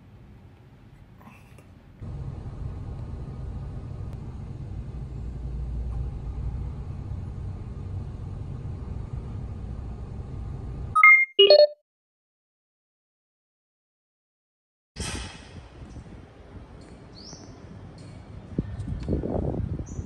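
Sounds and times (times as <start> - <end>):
car engine idling: 2.0 - 10.9.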